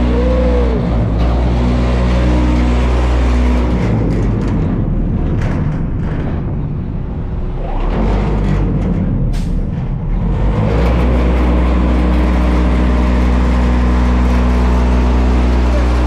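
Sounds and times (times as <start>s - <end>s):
rising whine: 0.0s - 4.0s
truck body vibrator humming: 0.0s - 16.0s
truck engine running: 0.0s - 16.0s.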